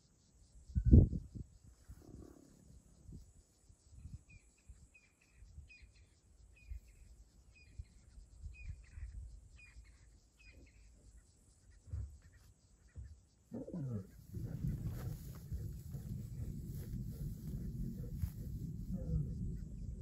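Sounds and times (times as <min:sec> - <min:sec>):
faint bird chirps: 0:00.0 - 0:20.0
faint low rumbles: 0:13.0 - 0:20.0.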